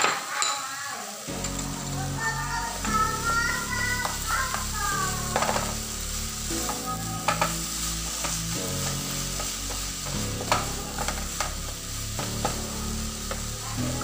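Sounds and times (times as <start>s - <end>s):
chilies sizzling in frying pan: 0.0s - 14.0s
spatula knocking pan: 6.6s - 7.6s.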